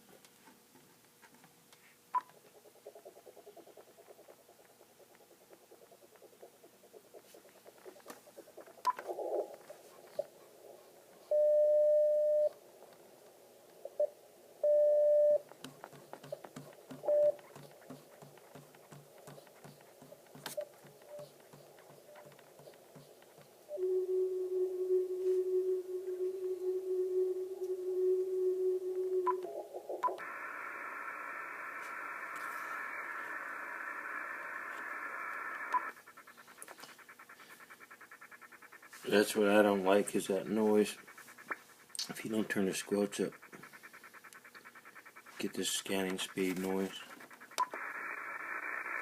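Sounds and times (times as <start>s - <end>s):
low pulsing scanning noise: 2.1s - 49.0s
short beeps: 11.3s - 12.6s, 14.6s - 15.4s
steady radio tone: 16.9s - 49.0s
steady low tone: 23.6s - 31.2s.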